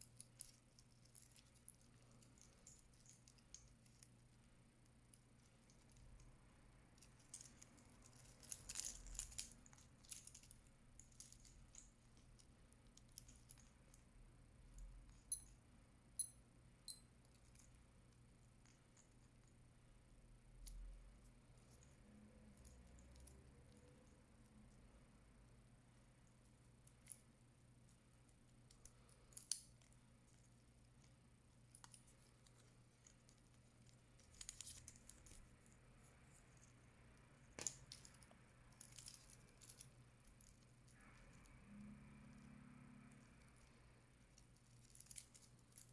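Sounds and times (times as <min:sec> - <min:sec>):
watch handling clicks and rattles: 0:00.0 - 0:06.3, 0:06.9 - 0:14.1, 0:15.1 - 0:15.6, 0:28.3 - 0:36.7, 0:37.5 - 0:41.0, 0:43.2 - 0:45.9
low steady hum: 0:00.0 - 0:45.9.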